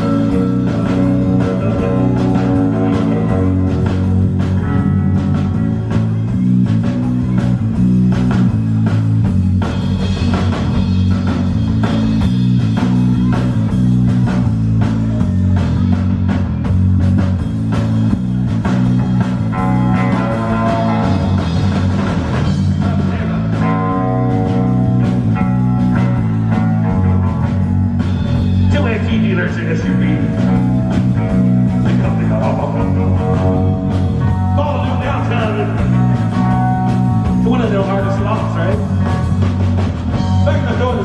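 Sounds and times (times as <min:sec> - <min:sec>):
electric guitar line: 0:00.0 - 0:41.0
rock band playing: 0:00.0 - 0:41.0.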